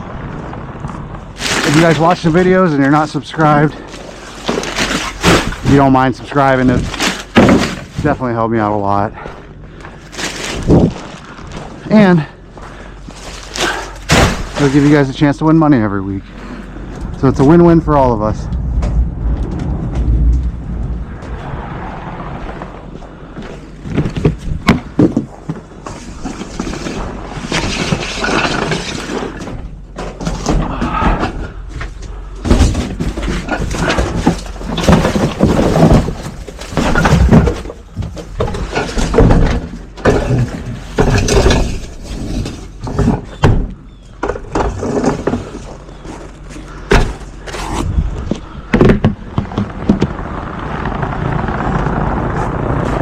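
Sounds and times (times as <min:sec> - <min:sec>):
trash dumped into garbage truck: 0:03.4 - 0:06.0, 0:13.5 - 0:15.0.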